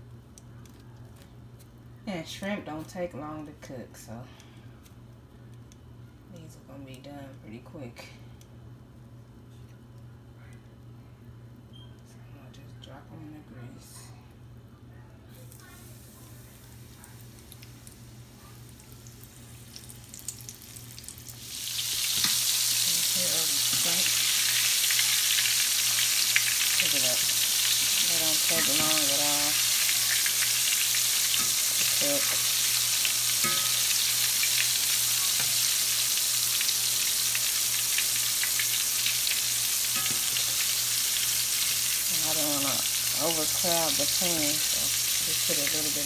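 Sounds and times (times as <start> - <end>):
deep frying sizzle: 15.5 - 46.0.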